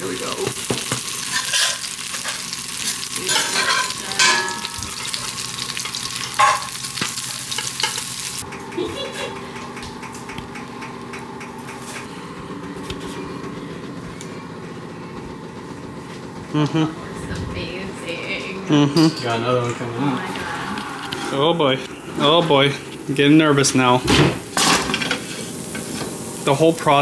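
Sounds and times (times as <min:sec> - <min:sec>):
sandwiches sizzling on a griddle: 0:00.0 - 0:08.4, 0:22.6 - 0:27.0
metal spatula scraping griddle: 0:01.2 - 0:06.6.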